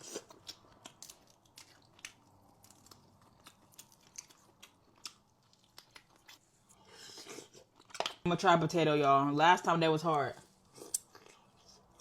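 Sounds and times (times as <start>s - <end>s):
person chewing food: 0.0s - 8.2s, 10.5s - 12.0s.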